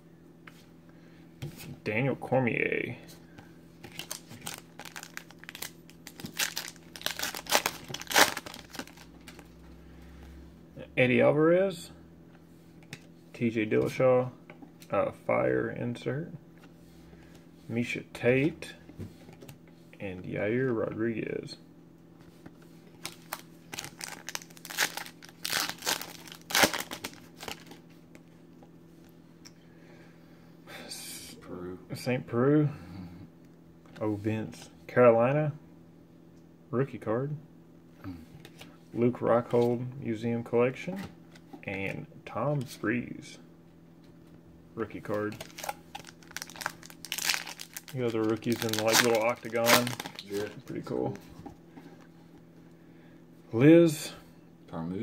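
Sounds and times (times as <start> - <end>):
foil wrapper tearing and crinkling: 3.9 - 9.4, 23.0 - 27.8, 45.1 - 50.6.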